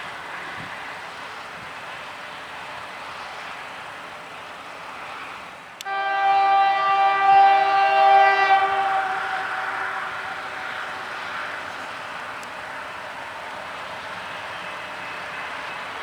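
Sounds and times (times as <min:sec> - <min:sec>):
locomotive air horn blast: 0:05.8 - 0:13.3.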